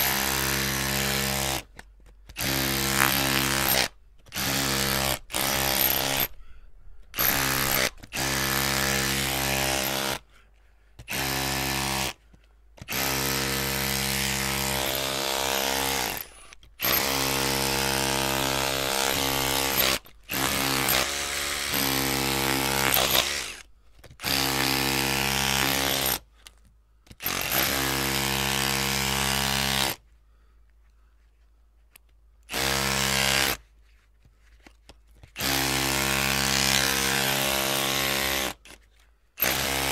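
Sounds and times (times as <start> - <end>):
electric drill whining: 2.4 - 6.4, 7.2 - 10.2, 12.9 - 26.2, 39.4 - 39.9.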